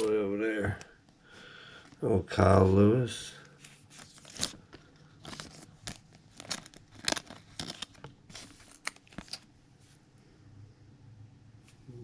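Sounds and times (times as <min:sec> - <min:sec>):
cards and plastic crinkling: 0:00.0 - 0:00.8, 0:01.8 - 0:09.6.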